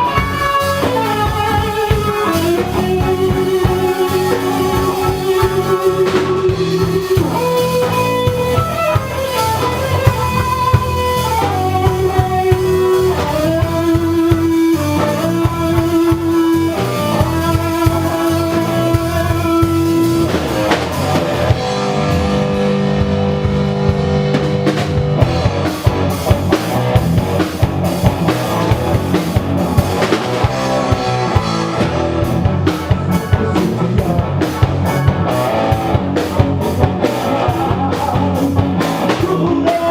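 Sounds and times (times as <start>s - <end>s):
sliding lead melody: 0.0s - 39.6s
bass: 0.0s - 39.9s
drums: 0.0s - 39.9s
guitar: 0.0s - 39.9s.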